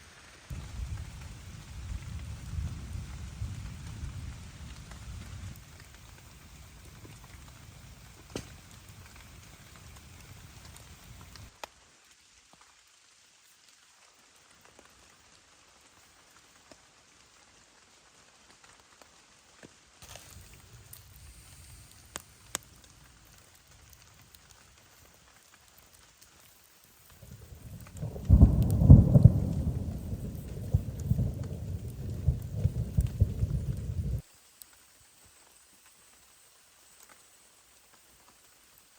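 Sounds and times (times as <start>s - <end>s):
faint steady rain: 0.0s - 38.9s
rolling thunder with sharp cracks: 27.2s - 34.2s.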